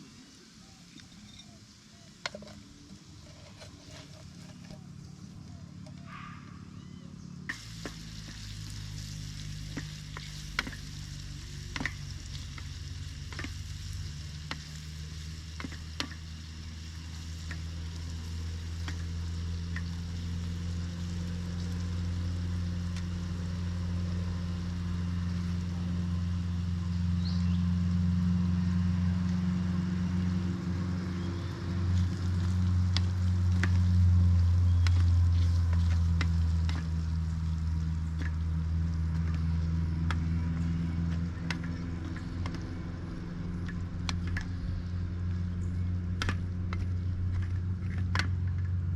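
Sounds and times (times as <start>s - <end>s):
low steady hum: 0.0s - 48.9s
food sizzling in a pan: 7.5s - 25.6s.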